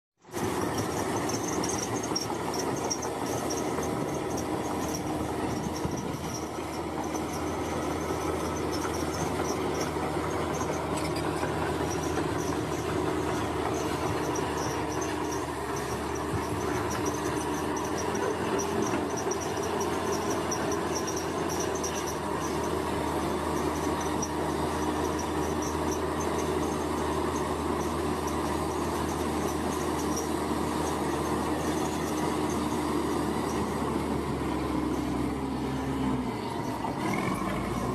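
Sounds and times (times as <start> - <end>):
construction machinery drone: 0.2 - 37.9.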